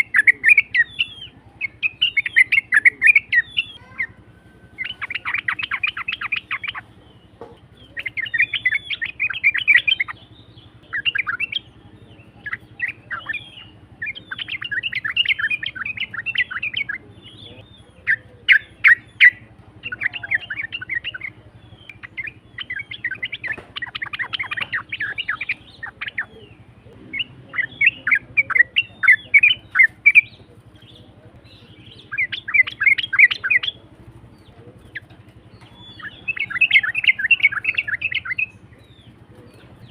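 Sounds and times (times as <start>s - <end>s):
bird singing chattering phrases: 0.0s - 39.9s.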